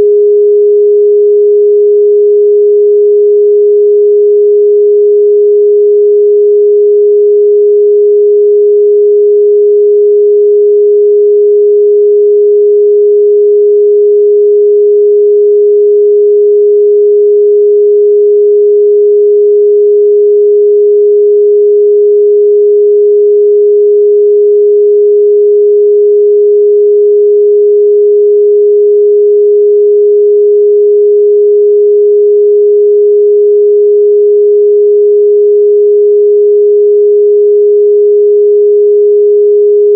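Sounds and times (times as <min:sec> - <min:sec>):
sine test tone: 0:00.0 - 0:39.9.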